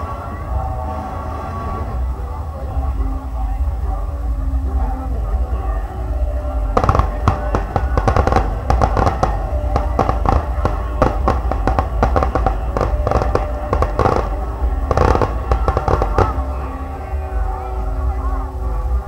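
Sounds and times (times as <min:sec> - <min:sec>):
music: 0:00.0 - 0:19.0
fireworks exploding and crackling: 0:06.6 - 0:16.7.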